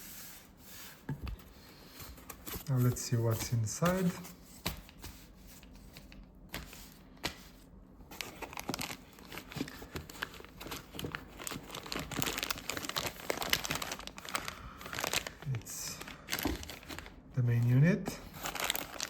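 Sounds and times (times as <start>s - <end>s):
packaging crinkling and rustling: 5.6s - 19.0s.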